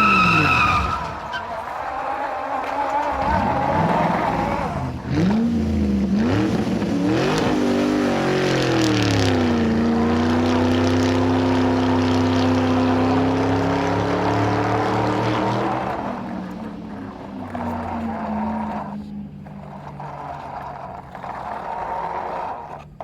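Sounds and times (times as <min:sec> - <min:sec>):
vehicle engine running: 0:03.0 - 0:23.0.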